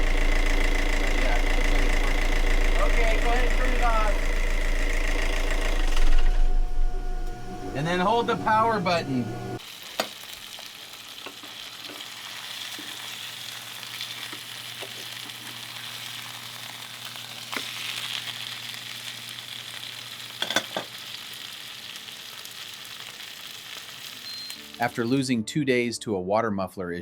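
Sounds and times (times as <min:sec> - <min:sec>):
diesel engine humming: 0:00.0 - 0:09.6.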